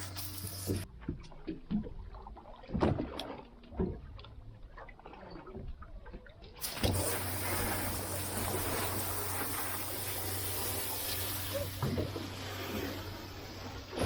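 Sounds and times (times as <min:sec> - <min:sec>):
running water rushing: 0:06.6 - 0:14.0
steady low hum: 0:06.6 - 0:14.0.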